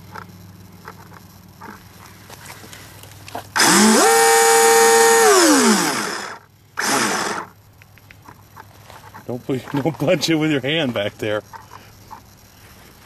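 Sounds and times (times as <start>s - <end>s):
electric motor whine: 3.5s - 7.6s.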